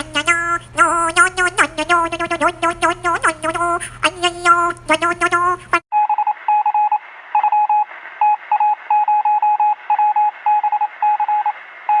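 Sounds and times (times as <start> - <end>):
morse code beeps: 6.0 - 12.0.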